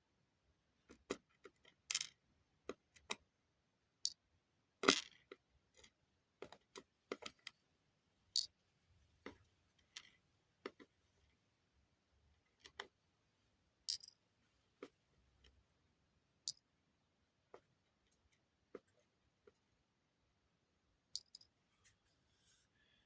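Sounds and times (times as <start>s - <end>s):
small nuggets clicking on hard surface: 21.2s - 21.5s.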